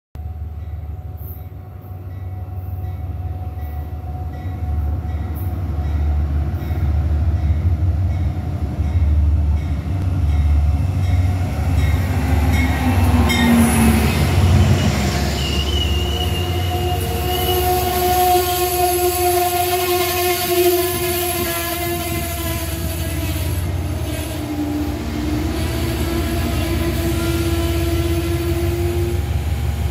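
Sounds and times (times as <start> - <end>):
diesel train rumble: 0.2 - 29.9
train wheels squealing: 12.6 - 18.6.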